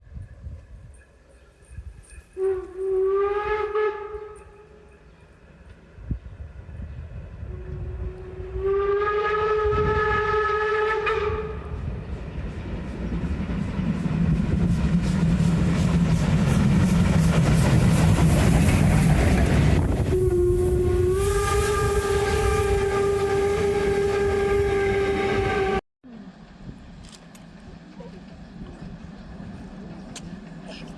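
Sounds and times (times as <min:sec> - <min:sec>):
train running with rhythmic beats: 0:00.0 - 0:25.8, 0:26.4 - 0:30.9
steam locomotive whistle: 0:02.4 - 0:05.0, 0:07.4 - 0:11.8, 0:19.9 - 0:25.8.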